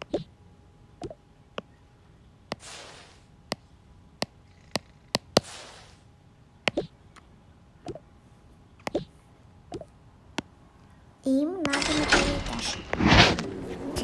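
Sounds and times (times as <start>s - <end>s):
short rustling hisses: 2.6s - 3.3s, 12.3s - 14.0s.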